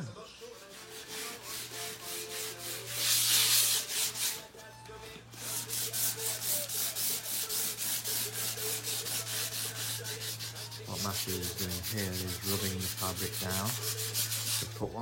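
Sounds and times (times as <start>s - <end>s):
hand sanding fabric: 0.5s - 4.5s, 5.3s - 14.9s.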